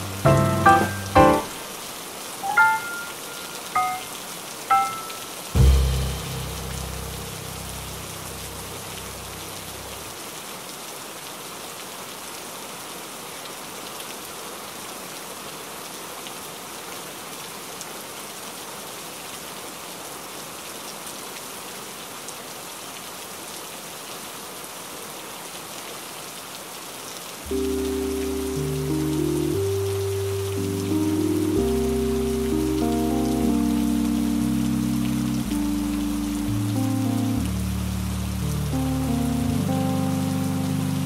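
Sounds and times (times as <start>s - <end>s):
background music: 0.0s - 1.6s, 2.4s - 4.1s, 4.7s - 7.3s, 27.5s - 41.0s
rain on window glass: 0.0s - 10.8s, 27.2s - 41.0s.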